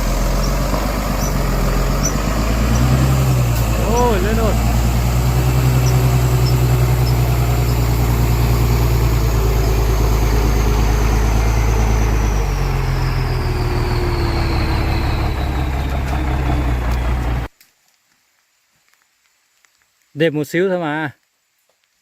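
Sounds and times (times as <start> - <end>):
heavy truck engine: 0.0 - 17.5.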